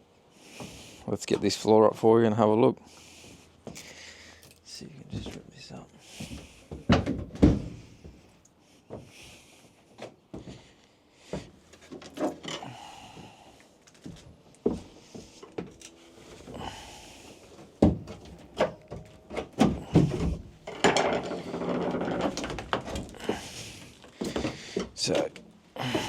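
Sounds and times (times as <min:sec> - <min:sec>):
wood creaking: 0:06.2 - 0:08.3, 0:11.3 - 0:26.0
wood knocking and thudding: 0:06.7 - 0:08.2, 0:17.8 - 0:23.6
scraping: 0:17.4 - 0:26.0.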